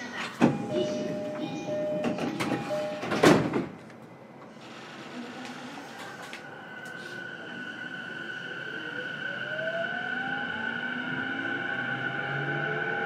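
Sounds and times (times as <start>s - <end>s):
train door closing chime beeping: 0.0s - 3.6s
sliding doors shutting thump: 0.3s - 3.8s.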